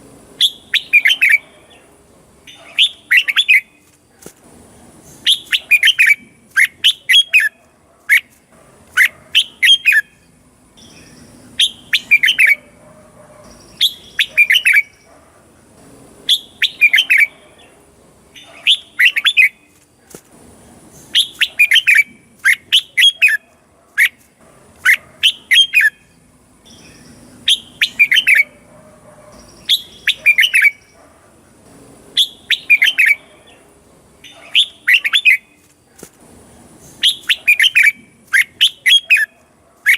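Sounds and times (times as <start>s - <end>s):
bird singing chirpy notes: 0.4s - 1.9s, 5.0s - 7.6s, 9.0s - 12.8s, 13.4s - 15.1s, 16.3s - 19.8s, 20.9s - 23.4s, 24.9s - 28.6s, 29.3s - 31.0s, 32.2s - 35.6s, 36.8s - 39.9s.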